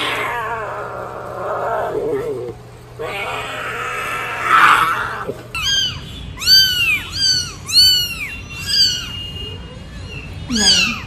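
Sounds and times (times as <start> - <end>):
kitten meowing: 3.1 - 9.3, 10.1 - 11.0.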